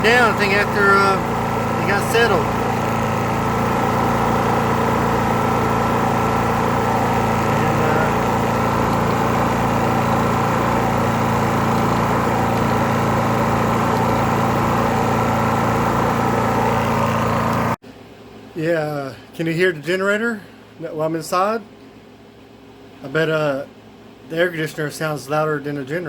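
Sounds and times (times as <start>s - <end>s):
generator running: 0.0s - 17.8s
window air conditioner running: 0.0s - 26.0s.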